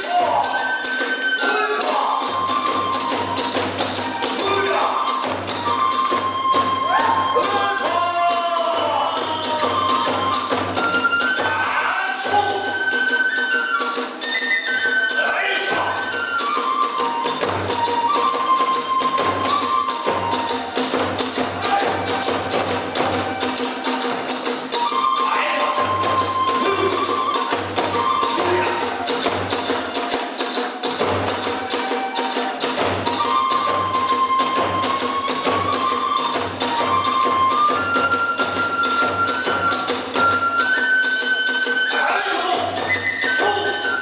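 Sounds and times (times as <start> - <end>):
bamboo flute long notes: 0.0 - 44.0
small hand cymbals: 12.3 - 44.0
fast drum beat: 20.1 - 35.3.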